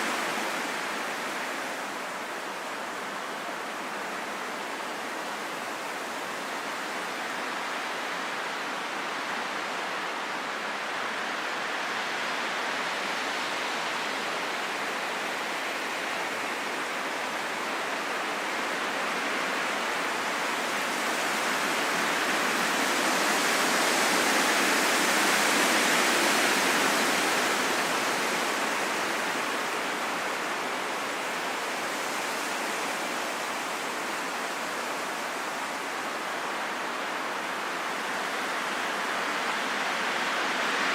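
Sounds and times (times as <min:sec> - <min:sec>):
steady rain in forest: 0:00.0 - 0:40.9.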